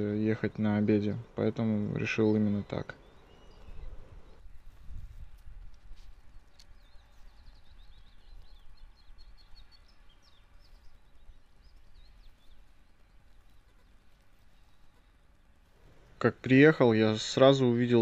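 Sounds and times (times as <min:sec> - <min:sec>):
songbird singing high chirps: 0:01.9 - 0:04.5, 0:06.2 - 0:13.7.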